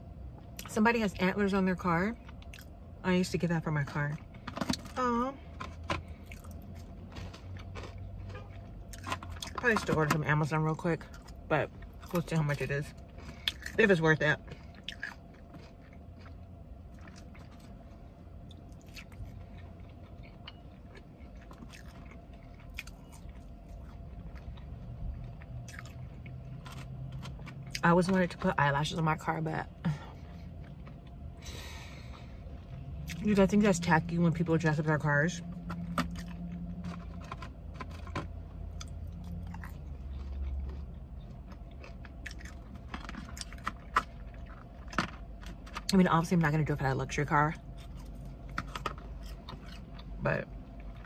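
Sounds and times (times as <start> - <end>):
low hum: 0.0 - 51.0
person chewing food: 2.2 - 2.8, 5.6 - 9.6, 12.9 - 13.8, 14.4 - 27.8, 30.0 - 33.2, 35.5 - 45.9, 47.6 - 51.0.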